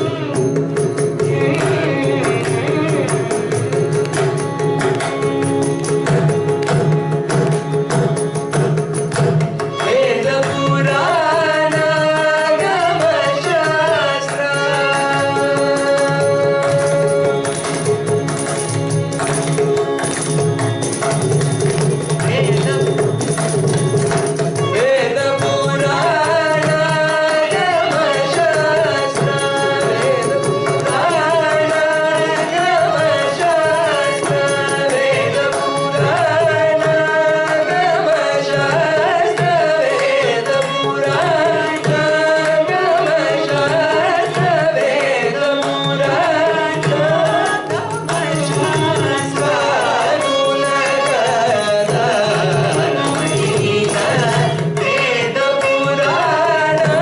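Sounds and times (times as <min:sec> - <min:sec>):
person singing with ornamented pitch: 0:00.0 - 0:04.1, 0:24.6 - 0:57.0.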